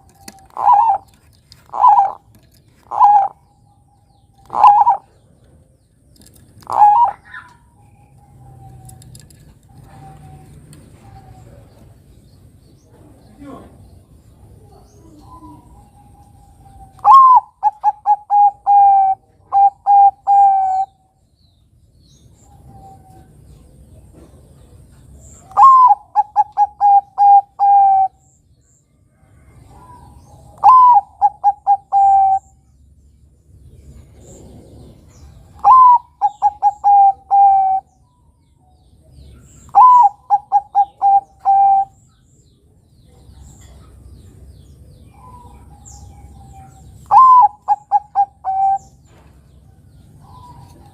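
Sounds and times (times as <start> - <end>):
dove cooing: 0.0 - 3.8, 4.4 - 5.5, 6.6 - 7.6, 14.5 - 21.0, 25.4 - 28.3, 29.5 - 32.6, 34.0 - 38.0, 39.4 - 42.0, 45.0 - 50.9.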